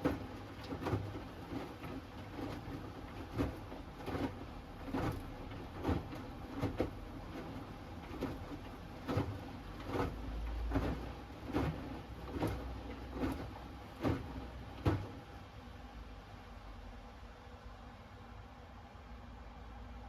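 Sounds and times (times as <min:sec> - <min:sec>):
laundry thudding in washing machine drum: 0:00.0 - 0:15.3
washing machine motor hum: 0:00.0 - 0:20.0.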